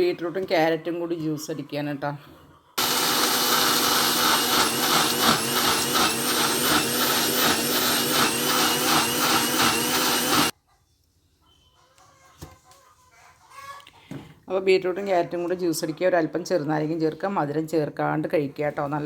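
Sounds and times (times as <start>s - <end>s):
juice churning in blender jar: 2.8s - 10.5s
mixer grinder motor whine: 2.8s - 10.5s.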